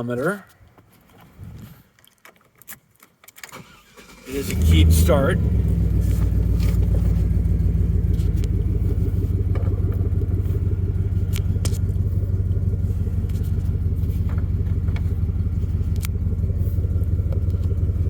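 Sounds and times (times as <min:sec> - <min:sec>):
pickup engine idling: 0:03.6 - 0:18.0.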